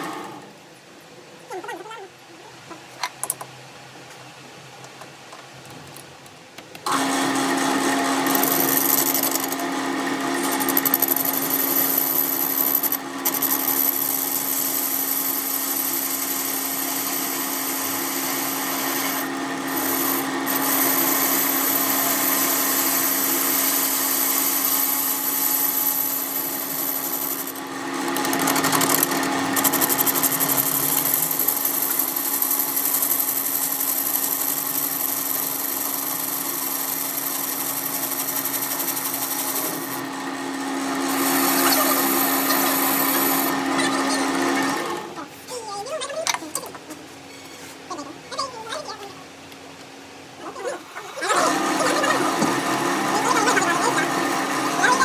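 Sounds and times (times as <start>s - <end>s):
power tool humming: 6.9s - 45.2s, 50.8s - 55.0s.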